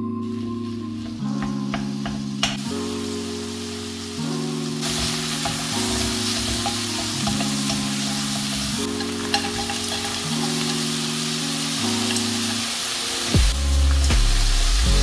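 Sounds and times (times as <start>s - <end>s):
background music of sustained chords: 0.0s - 15.0s
chicken sizzling in a pan: 0.2s - 15.0s
spatula tapping pan: 1.0s - 2.8s, 4.8s - 11.0s.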